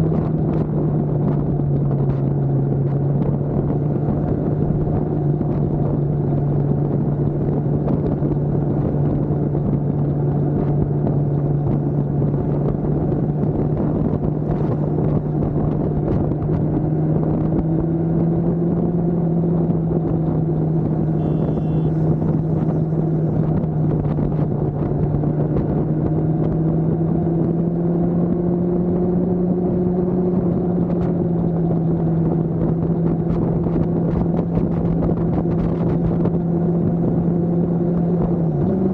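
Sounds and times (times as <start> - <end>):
motorcycle engine running: 18.8 - 26.8.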